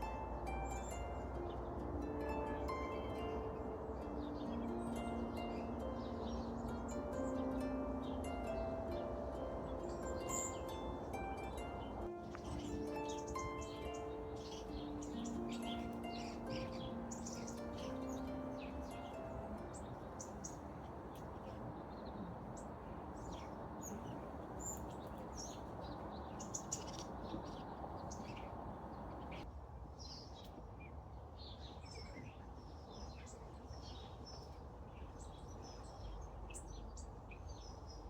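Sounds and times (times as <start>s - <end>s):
steady background hiss: 0.0s - 29.8s
small birds chirping: 0.0s - 38.0s.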